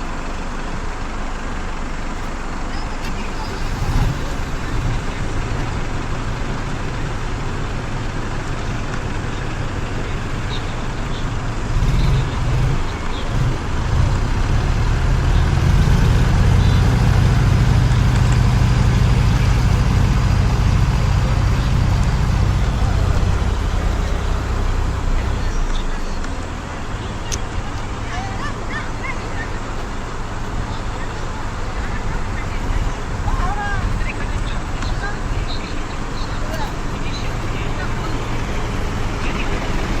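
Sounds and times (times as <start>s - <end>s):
tractor diesel engine rumbling: 0.0s - 40.0s.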